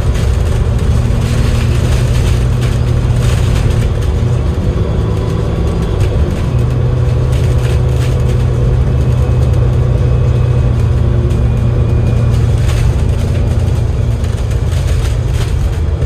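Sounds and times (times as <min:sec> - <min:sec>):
bus diesel engine hum: 0:00.0 - 0:16.0.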